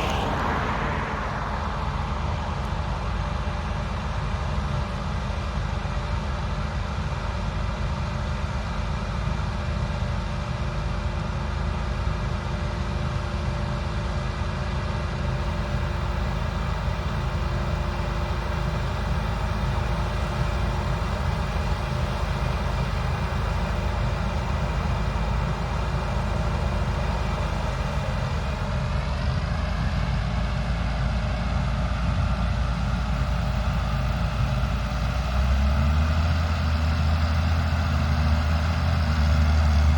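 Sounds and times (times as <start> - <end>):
diesel machinery running: 0.0 - 39.9.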